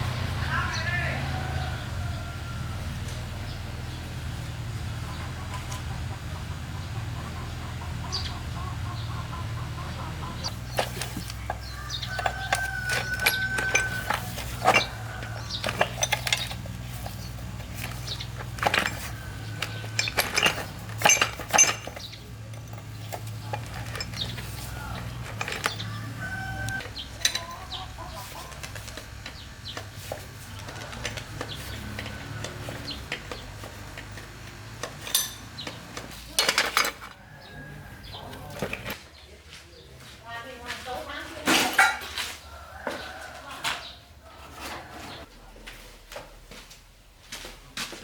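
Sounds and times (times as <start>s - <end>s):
metal tools clinking: 10.4s - 39.0s.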